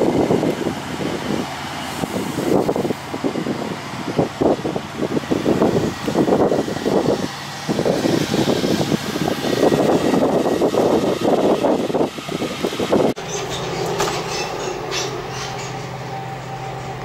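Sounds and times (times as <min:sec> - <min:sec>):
passenger train rumbling: 0:00.0 - 0:17.0
wind buffeting microphone: 0:00.0 - 0:17.0.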